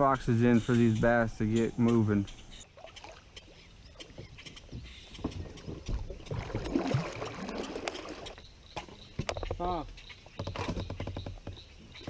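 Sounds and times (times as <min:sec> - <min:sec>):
water splashing around a kayak: 0:02.6 - 0:08.4.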